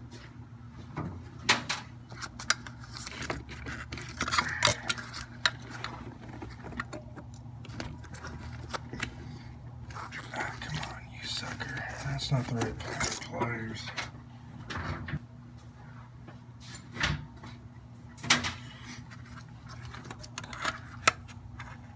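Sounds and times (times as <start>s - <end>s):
steady low hum: 0.4s - 16.6s
hand tools clicking and clinking: 2.1s - 9.1s.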